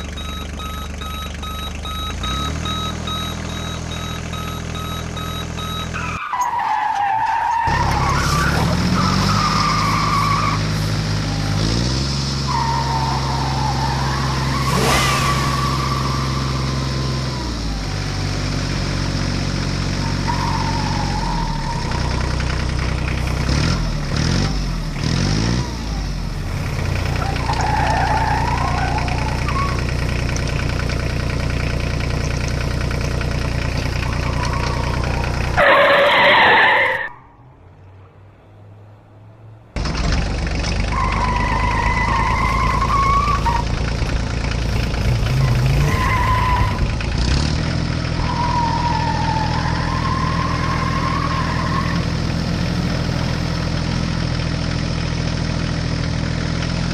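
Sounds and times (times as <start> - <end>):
low engine hum effect: 0.0 - 5.8
repeating electronic beep: 0.0 - 6.2
wavering tyre squeal effects: 2.2 - 23.8, 26.9 - 37.6, 40.8 - 44.2, 44.9 - 47.2, 48.0 - 53.4.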